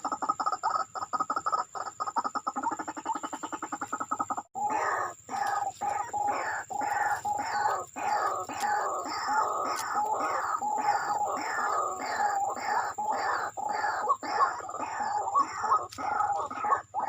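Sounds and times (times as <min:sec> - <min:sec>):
bird croaking notes: 0:00.0 - 0:17.0.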